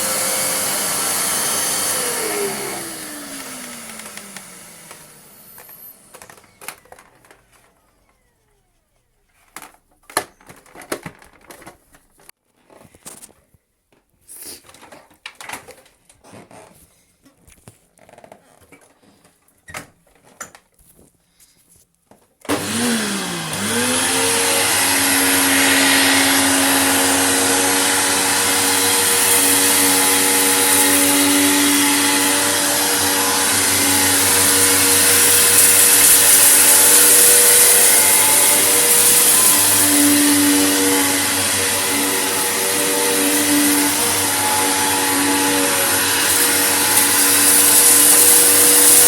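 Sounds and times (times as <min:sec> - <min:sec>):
vacuum cleaner motor whining: 0:00.0 - 0:11.0, 0:22.5 - 0:49.0.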